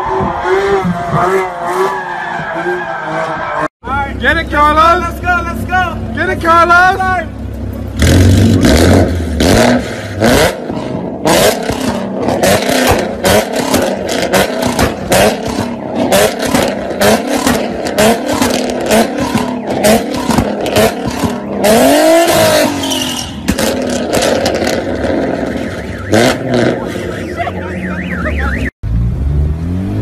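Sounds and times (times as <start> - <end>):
car engine revving: 7.3 - 30.0
exhaust pops and bangs: 11.5 - 26.4.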